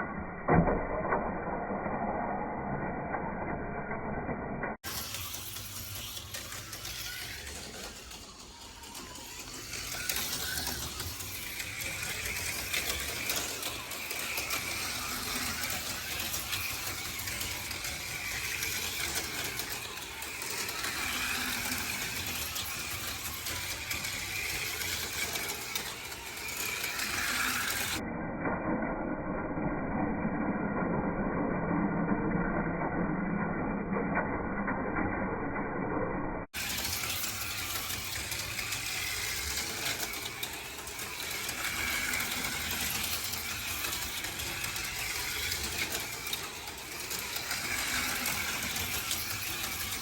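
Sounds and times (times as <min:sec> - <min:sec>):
slot car motors whining: 0:04.2 - 0:28.0, 0:34.9 - 0:50.0.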